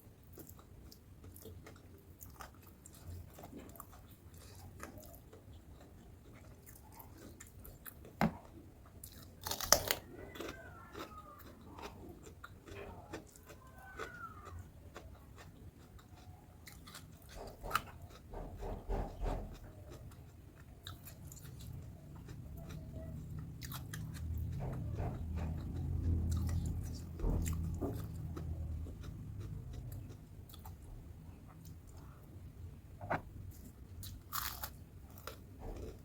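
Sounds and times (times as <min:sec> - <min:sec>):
person crunching and chewing: 0:00.3 - 0:18.3, 0:33.1 - 0:36.0
sharp crackles of food: 0:09.0 - 0:19.0.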